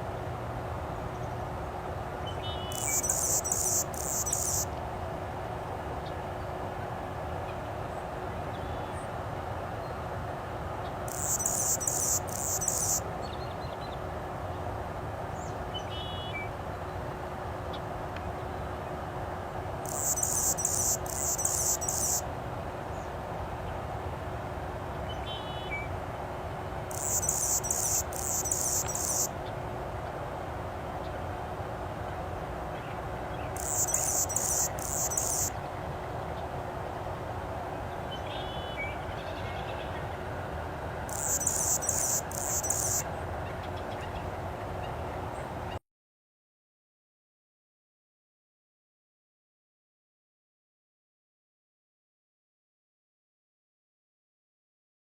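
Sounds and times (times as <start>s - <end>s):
steady background hiss: 0.0s - 45.8s
songbird buzzy trilling: 2.5s - 4.7s, 11.1s - 13.0s, 19.8s - 22.2s, 26.9s - 29.3s, 33.6s - 35.6s, 41.1s - 43.0s.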